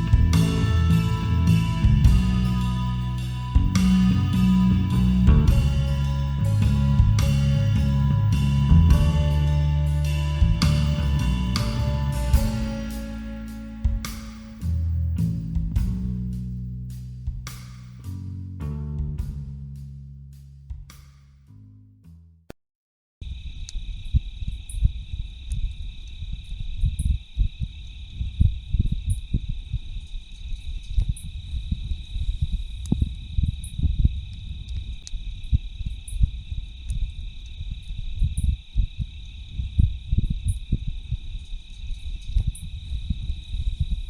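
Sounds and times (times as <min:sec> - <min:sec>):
low rumble: 0:00.0 - 0:22.2
high-pitched insect chorus: 0:23.2 - 0:44.0.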